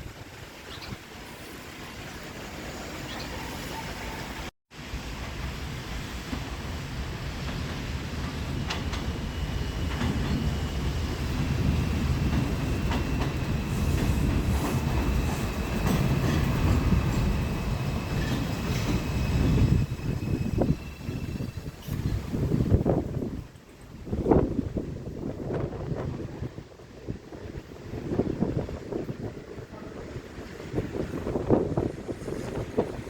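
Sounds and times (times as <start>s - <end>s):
subway train rumble: 0.0s - 33.0s
wheels clicking over rail joints: 6.3s - 19.8s.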